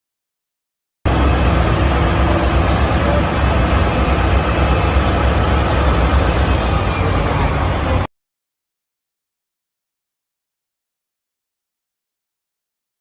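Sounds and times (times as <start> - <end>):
low engine rumble: 1.1 - 8.1.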